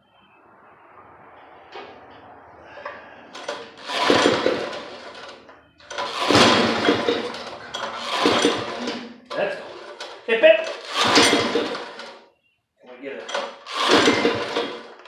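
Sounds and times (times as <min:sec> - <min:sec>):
engine pull-start cranking: 0:03.3 - 0:12.2, 0:13.3 - 0:15.0.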